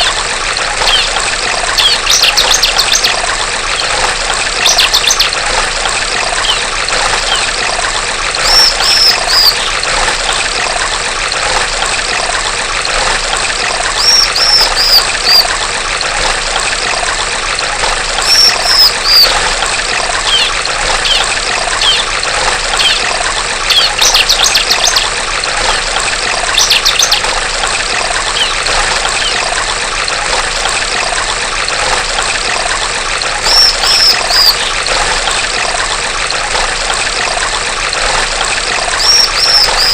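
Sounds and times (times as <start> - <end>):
water trickling and splashing: 0.0 - 39.9
bird chirping: 1.8 - 3.2, 4.6 - 5.3, 6.4 - 7.5, 8.4 - 9.8, 14.0 - 15.4, 18.2 - 19.3, 20.2 - 22.1, 23.7 - 25.1, 26.6 - 27.3, 28.3 - 29.4, 33.4 - 34.8, 39.0 - 39.9.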